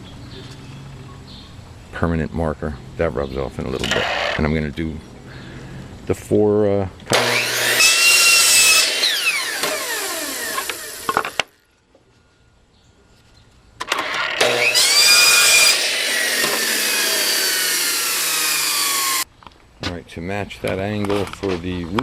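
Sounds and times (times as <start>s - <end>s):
saw motor winding down: 3.8s - 4.4s, 7.1s - 11.4s, 13.9s - 19.3s
miter saw cutting wood: 3.8s - 4.5s, 7.1s - 11.4s, 13.8s - 19.3s.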